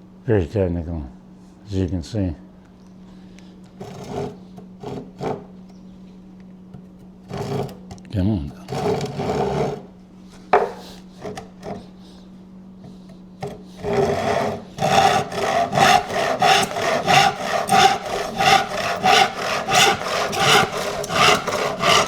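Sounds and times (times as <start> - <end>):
handsaw cutting wood: 3.8 - 5.5, 7.3 - 7.8, 8.6 - 9.9, 10.7 - 12.0, 13.4 - 22.0
light knocks on wood: 10.5 - 10.8.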